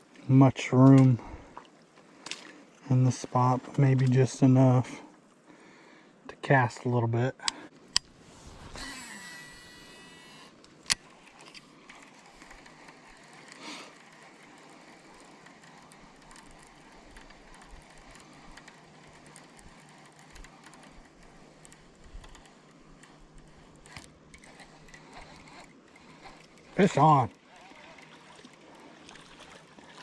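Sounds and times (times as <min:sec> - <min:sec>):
fishing reel click: 0:07.4 - 0:30.0
fishing reel spool whining: 0:08.0 - 0:30.0
reel gear cranking: 0:08.7 - 0:30.0.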